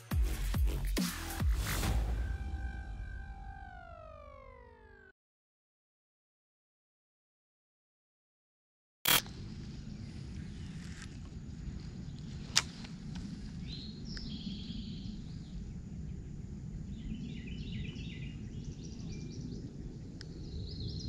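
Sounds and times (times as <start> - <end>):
steady low rumble: 0.2 - 5.1, 9.2 - 21.0
sharp click: 9.1 - 9.3
songbirds chirping: 9.3 - 21.0.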